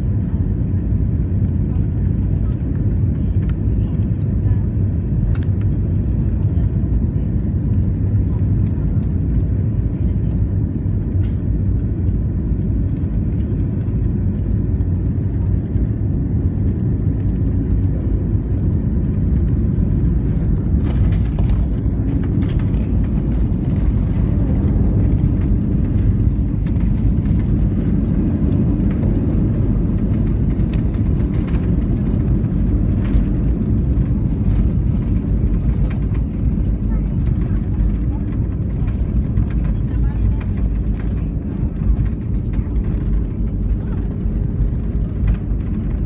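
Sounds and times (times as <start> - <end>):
airplane cabin engine rumble: 0.0 - 46.0.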